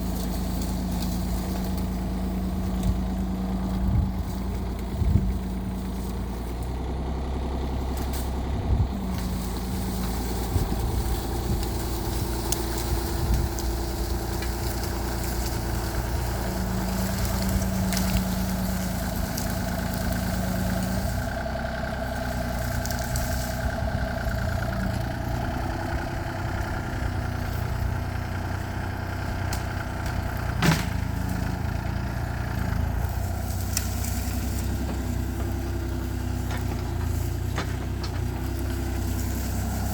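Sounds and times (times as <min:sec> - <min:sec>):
excavator diesel engine: 0:00.0 - 0:39.9
sharp knocks: 0:30.6 - 0:31.1.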